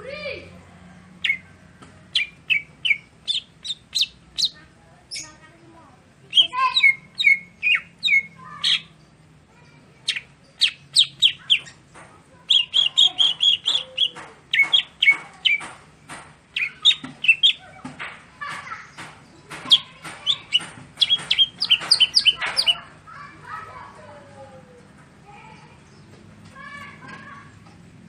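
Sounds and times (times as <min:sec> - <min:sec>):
bird singing chirps and whistles: 0:16.6 - 0:17.6, 0:19.7 - 0:22.8.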